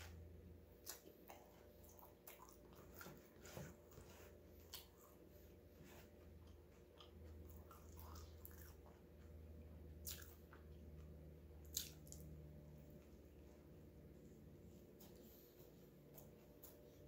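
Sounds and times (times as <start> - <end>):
chewing sandwich: 0.1 - 13.2.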